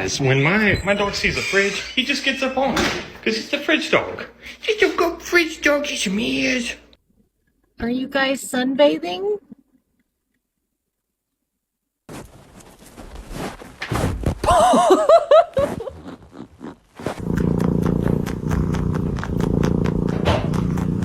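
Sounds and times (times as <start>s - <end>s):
cat purring: 15.6s - 21.0s.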